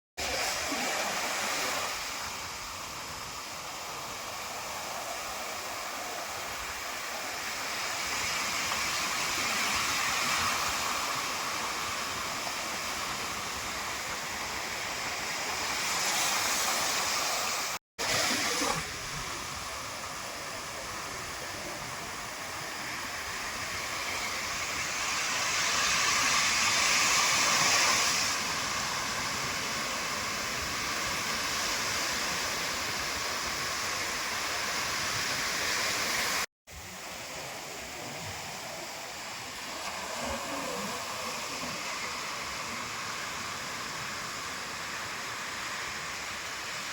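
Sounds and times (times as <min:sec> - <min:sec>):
sea surf on a beach: 0:00.2 - 0:46.9.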